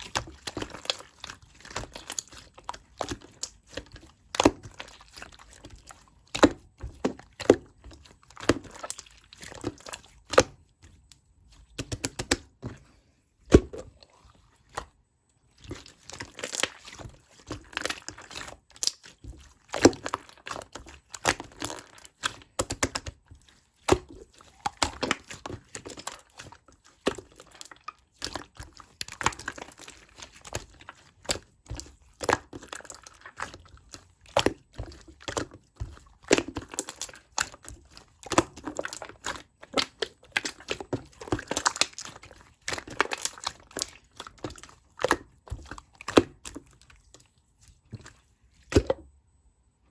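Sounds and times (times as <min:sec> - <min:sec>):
hands squishing slime: 0:00.0 - 0:49.2.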